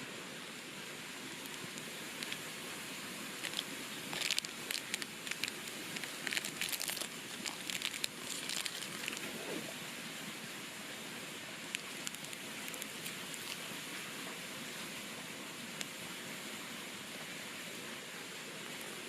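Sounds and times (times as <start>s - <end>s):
background hiss: 0.0s - 19.0s
crinkling and rustling: 1.4s - 2.6s, 3.2s - 9.7s, 11.6s - 13.8s.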